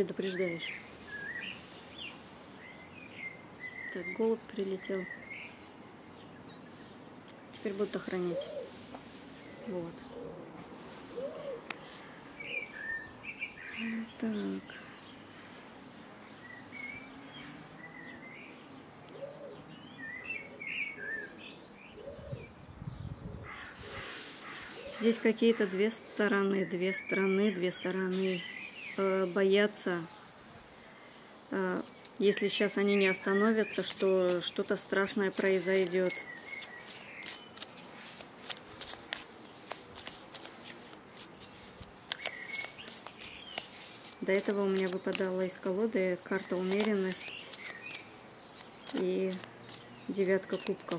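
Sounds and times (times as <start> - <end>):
outdoor background noise: 0.0 - 50.9
small birds chirping: 0.0 - 50.9
cards shuffled by hand: 32.8 - 50.9.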